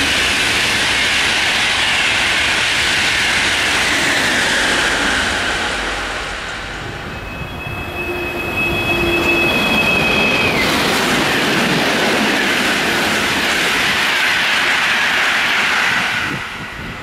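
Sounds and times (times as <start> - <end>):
high-speed train passing: 0.0 - 17.0
high-pitched rail ringing: 4.8 - 11.2.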